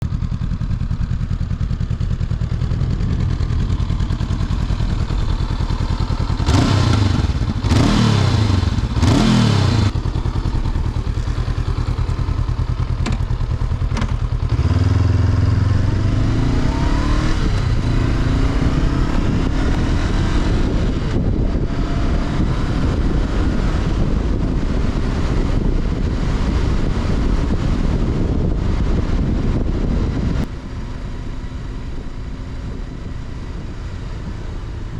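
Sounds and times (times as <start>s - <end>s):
motorcycle engine idling: 0.0s - 16.1s, 22.8s - 34.9s
motorcycle accelerating through gears: 0.0s - 34.9s
engine revving: 6.1s - 10.4s, 13.9s - 28.4s.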